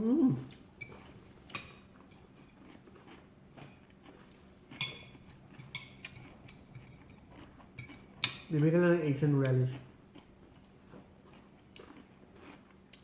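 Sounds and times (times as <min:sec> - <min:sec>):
cutlery clinking against plates: 0:00.8 - 0:02.7, 0:04.7 - 0:08.8.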